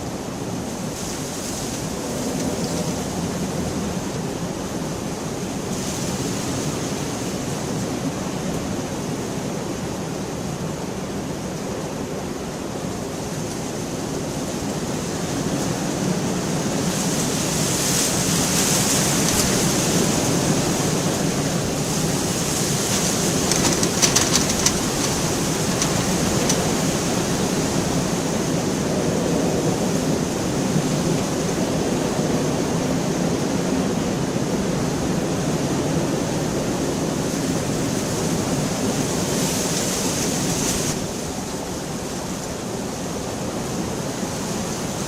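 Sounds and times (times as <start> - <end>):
heavy rain falling: 13.9 - 32.6.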